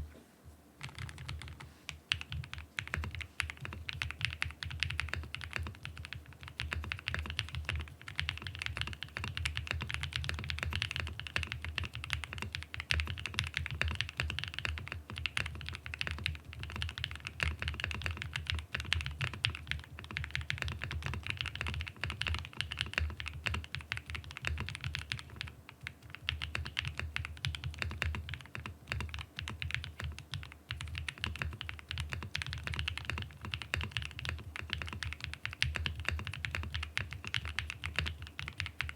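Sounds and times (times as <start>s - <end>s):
fast mechanical keyboard typing: 0.8s - 38.9s.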